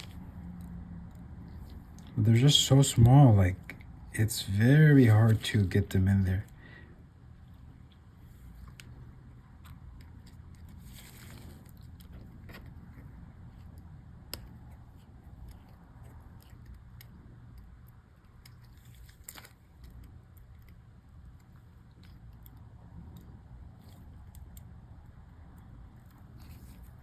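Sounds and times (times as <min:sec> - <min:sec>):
steady low hum: 0:00.0 - 0:27.0
small plastic clicks and ticks: 0:13.6 - 0:27.0.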